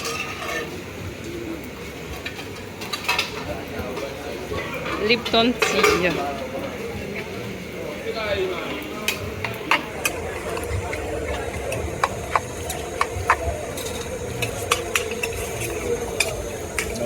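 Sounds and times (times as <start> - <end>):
street rumble: 9.2 - 17.0.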